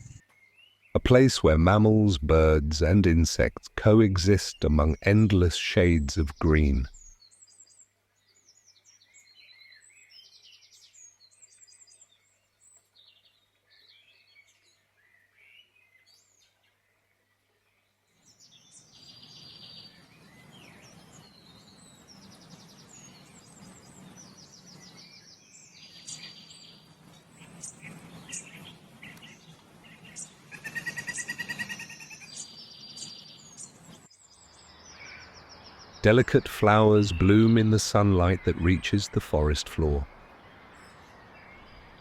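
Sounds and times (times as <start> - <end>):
songbirds chirping and singing: 0.0 - 42.0
fast bird trills: 20.8 - 33.8.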